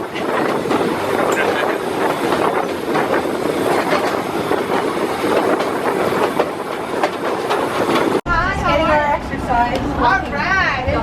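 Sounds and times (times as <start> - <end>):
wheels knocking on rails: 0.0 - 8.2
train rumbling along track: 0.0 - 11.0.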